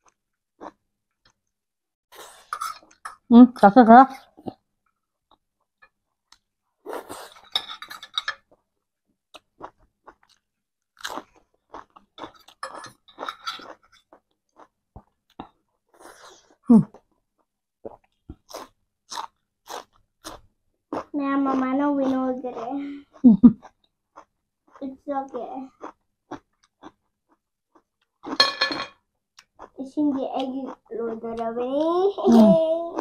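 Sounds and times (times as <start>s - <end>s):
crunchy chewing: 9.3s - 24.9s, 25.6s - 28.4s.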